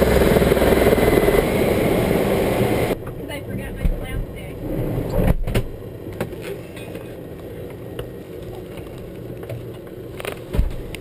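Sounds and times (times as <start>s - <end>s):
helicopter low rumble: 0.0s - 4.4s.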